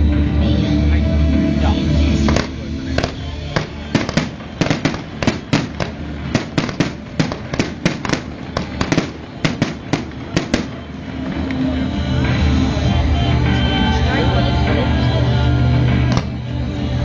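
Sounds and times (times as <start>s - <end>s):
music: 0.0s - 17.0s
fireworks bangs and crackling: 2.2s - 12.6s, 16.0s - 16.5s.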